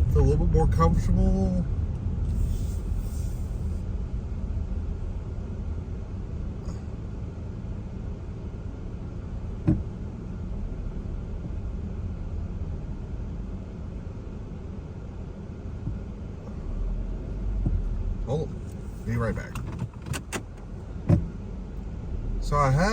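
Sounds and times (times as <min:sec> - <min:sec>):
car driving rumble: 0:00.0 - 0:22.9.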